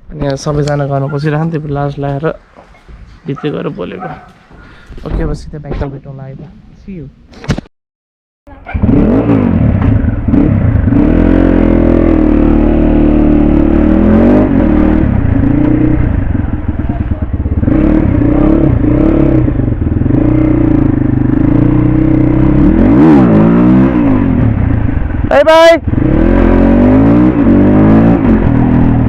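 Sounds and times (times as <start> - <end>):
motocross bike engine revving: 8.6 - 29.0.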